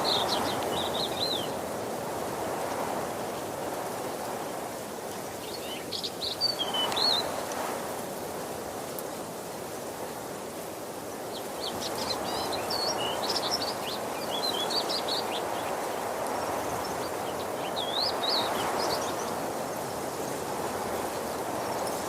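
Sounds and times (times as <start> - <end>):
small birds chirping: 0.0 - 1.6, 5.4 - 7.4, 11.3 - 19.9.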